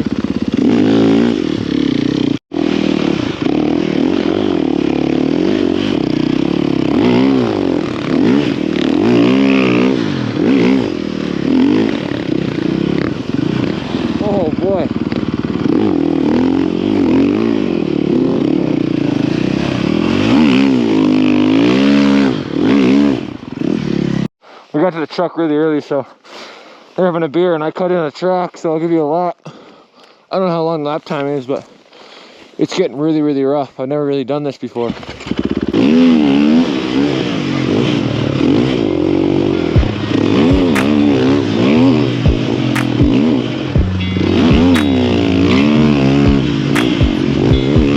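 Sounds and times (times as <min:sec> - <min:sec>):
snow bike engine revving: 0:00.0 - 0:24.3, 0:35.0 - 0:47.9.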